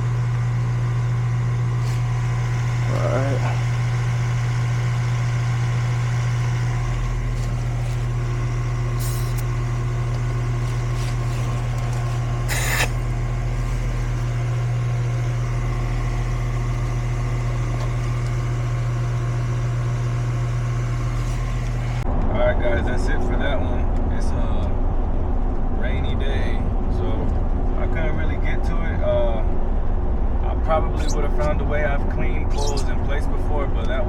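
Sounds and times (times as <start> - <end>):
air conditioner electrical hum: 0.0 - 34.0
burst of hiss: 9.0 - 9.4, 12.5 - 13.0.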